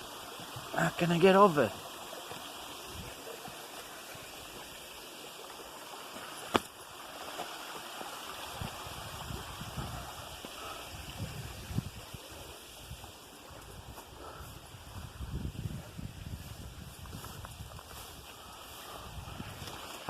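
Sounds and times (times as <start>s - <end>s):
stream water rushing: 0.0s - 15.0s, 17.9s - 20.0s.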